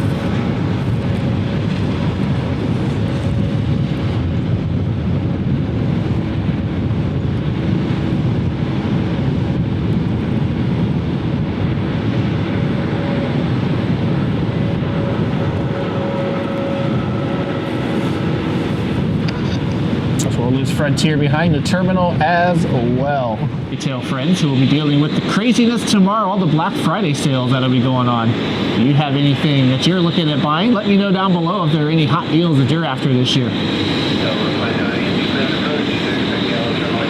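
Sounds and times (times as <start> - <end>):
jet engines rumbling: 0.0 - 37.0
faint steady whine: 9.6 - 37.0.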